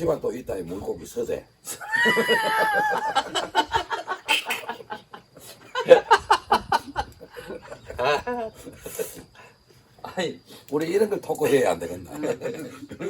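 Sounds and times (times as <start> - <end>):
group of people laughing: 1.7 - 9.3, 12.1 - 13.0.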